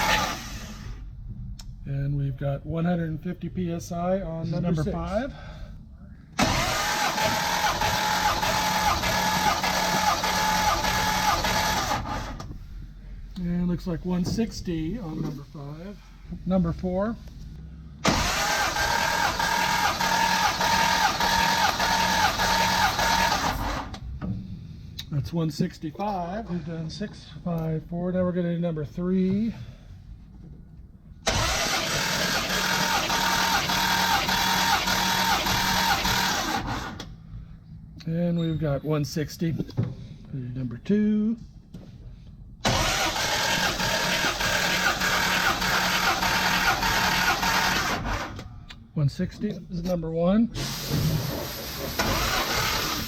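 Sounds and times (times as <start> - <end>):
engine cranking on starter motor: 0.0 - 1.0, 6.4 - 12.5, 18.0 - 24.2, 31.2 - 37.1, 42.6 - 48.5, 50.6 - 53.0.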